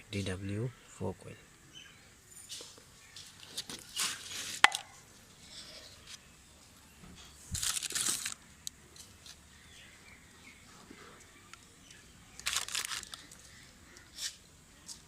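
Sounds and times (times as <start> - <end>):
crinkling and rustling: 7.2 - 8.4, 12.3 - 13.6.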